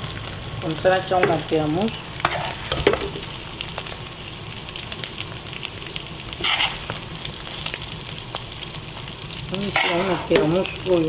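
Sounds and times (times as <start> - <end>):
fish sizzling in oil: 0.0 - 11.0
spoon scraping pan: 2.2 - 3.3, 6.4 - 7.1, 9.5 - 10.9.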